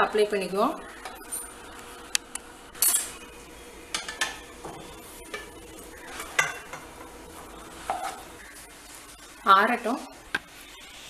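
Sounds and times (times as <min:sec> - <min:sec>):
spoon scraping cookware: 0:03.9 - 0:07.0, 0:07.7 - 0:08.4.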